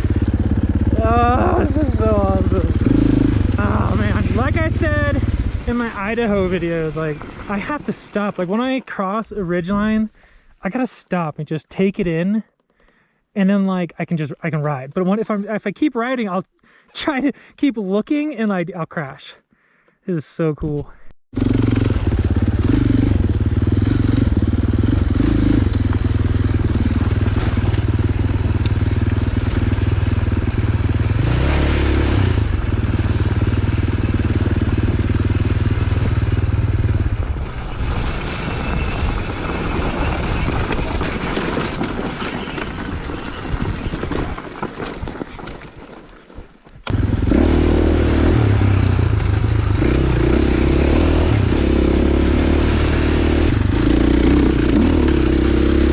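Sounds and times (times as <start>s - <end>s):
dirt bike engine running: 0.0s - 7.8s, 21.3s - 46.2s, 46.9s - 55.9s
rattles: 38.2s - 46.4s.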